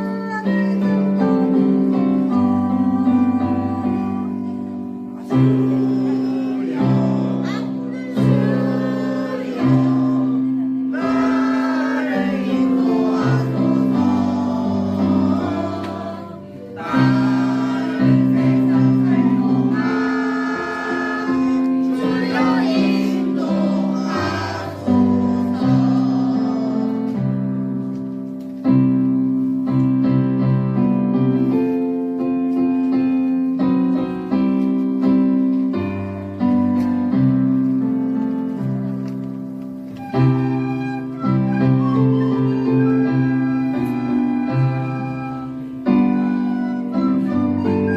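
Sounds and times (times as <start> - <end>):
choir singing: 5.2 - 27.4.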